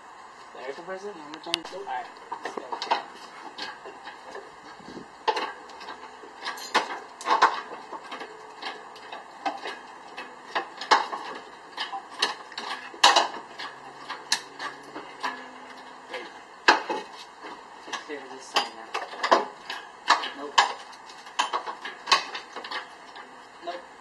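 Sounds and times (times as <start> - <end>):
hand tools clicking on metal: 5.3 - 17.1.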